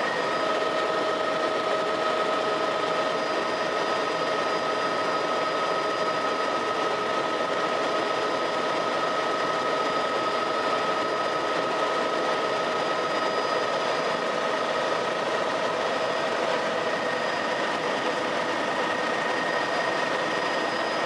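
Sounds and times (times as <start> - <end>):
helicopter engine and rotor: 0.0 - 21.0.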